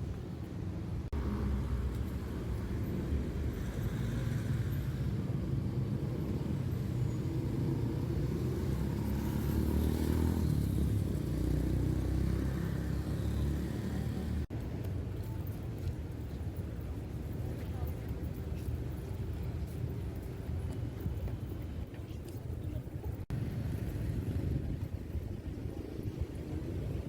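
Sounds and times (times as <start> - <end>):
passing cars and motorcycles: 1.0 - 14.6, 23.2 - 27.0.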